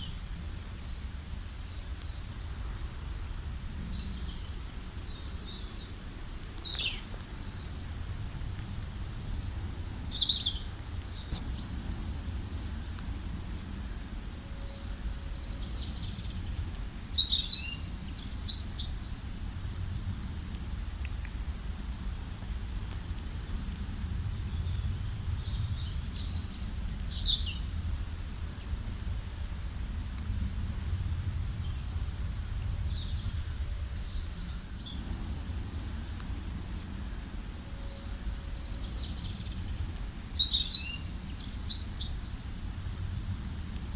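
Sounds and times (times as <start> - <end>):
songbirds chirping: 0.0 - 19.6, 31.2 - 43.3
low background rumble: 1.2 - 43.9.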